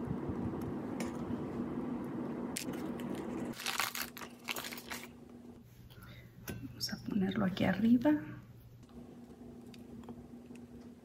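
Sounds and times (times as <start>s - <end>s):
faint steady hum: 0.0s - 11.0s
cake crackling and crumbling: 2.6s - 5.2s.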